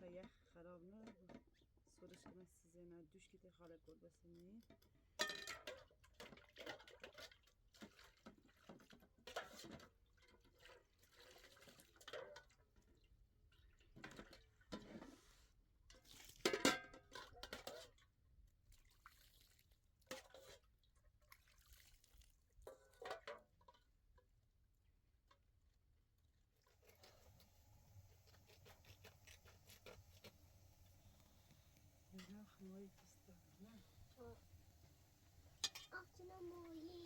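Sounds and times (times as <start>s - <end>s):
kitchen knocks and clinks: 5.2s - 5.9s, 35.5s - 36.0s
liquid dripping and splashing: 18.6s - 23.0s.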